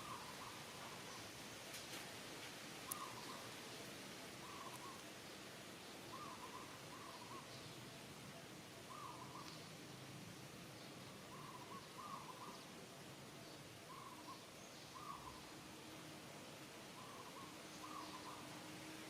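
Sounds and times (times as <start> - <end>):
background hiss: 0.0 - 19.0.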